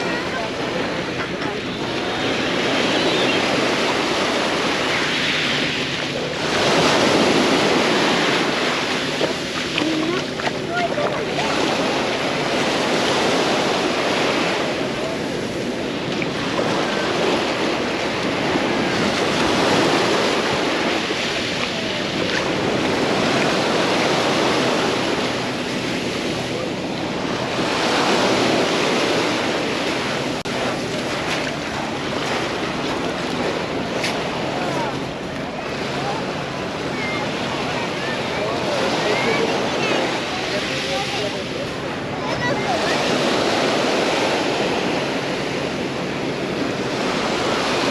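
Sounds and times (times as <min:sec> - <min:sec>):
sea waves breaking on beach: 0:00.0 - 0:47.9
wind on microphone: 0:00.0 - 0:47.9.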